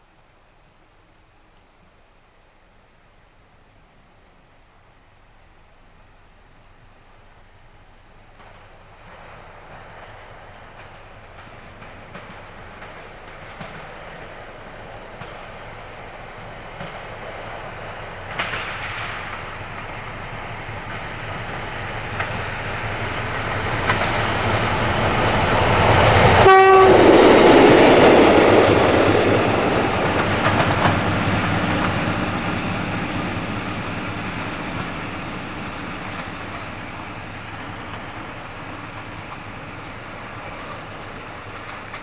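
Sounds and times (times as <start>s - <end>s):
train passing: 5.7s - 42.0s
train horn: 25.6s - 28.5s.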